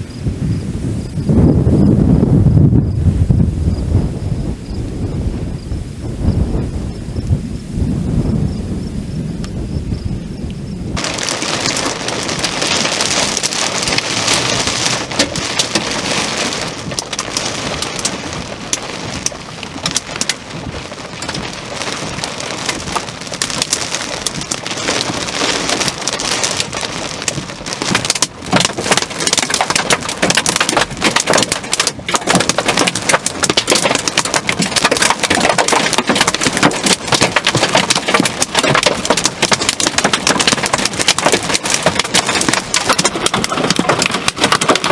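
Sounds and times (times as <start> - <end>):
heavy rain pouring: 0.0 - 44.9
sharp raindrop impacts: 11.0 - 44.9.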